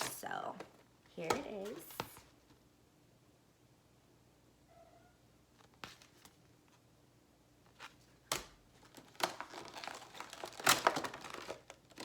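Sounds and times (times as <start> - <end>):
plastic crinkling: 7.8 - 12.0.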